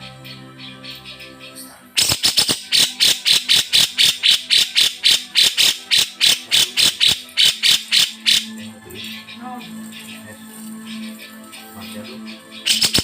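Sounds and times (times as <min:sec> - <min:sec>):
bulbul calling rapid harsh notes: 0:02.0 - 0:08.5, 0:12.6 - 0:13.0.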